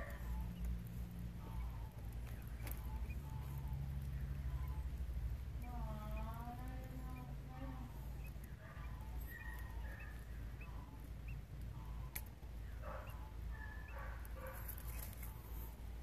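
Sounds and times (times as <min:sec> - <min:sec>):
baby birds peeping: 0:00.0 - 0:16.0
steady low hum: 0:00.0 - 0:16.0.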